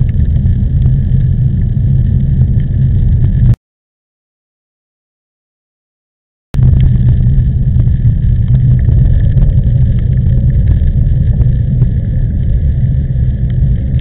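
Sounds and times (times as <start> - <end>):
strong wind buffeting microphone: 0.0 - 3.6, 6.6 - 14.0.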